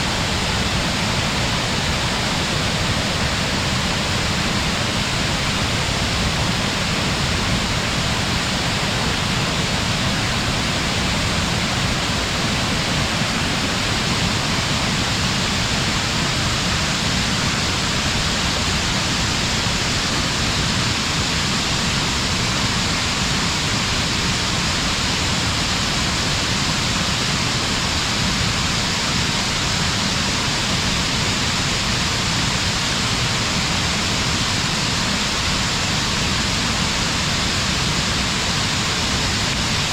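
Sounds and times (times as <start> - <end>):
distant waterfall roaring: 0.0 - 39.9.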